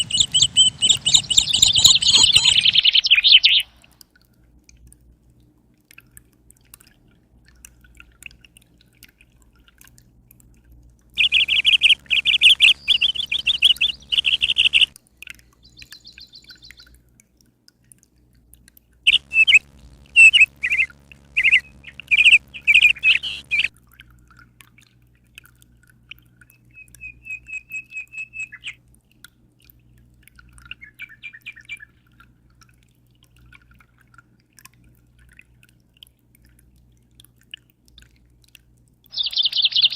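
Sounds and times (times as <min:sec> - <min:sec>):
birds chirping: 0:00.0 - 0:03.8, 0:11.2 - 0:15.0, 0:19.1 - 0:23.7, 0:39.1 - 0:39.9.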